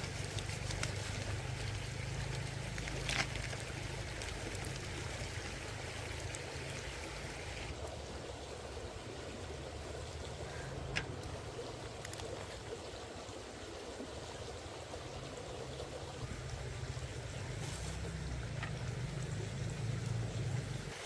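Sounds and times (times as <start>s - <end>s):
stream water flowing: 0.0s - 21.0s.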